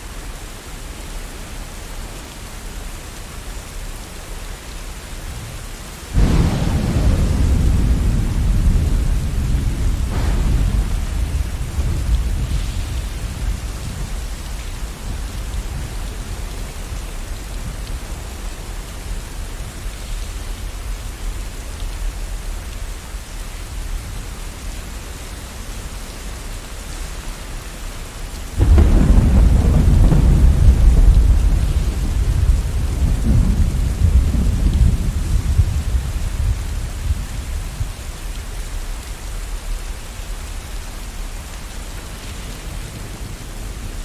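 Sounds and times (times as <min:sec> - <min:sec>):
steady rain: 0:00.0 - 0:44.0
loud thunderclap: 0:06.1 - 0:16.5, 0:28.6 - 0:37.5
distant thunder rumble: 0:06.1 - 0:20.6, 0:28.6 - 0:37.8.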